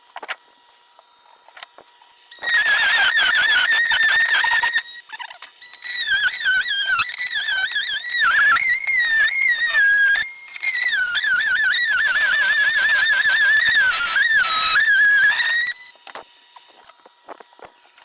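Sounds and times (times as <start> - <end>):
shrill warbling whistle: 2.3 - 16.0.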